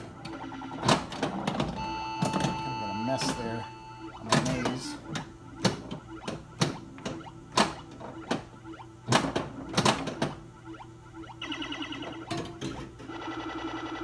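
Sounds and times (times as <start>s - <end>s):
pinball machine background drone: 0.0s - 14.0s
pinball ball and flipper knocks: 4.2s - 10.4s.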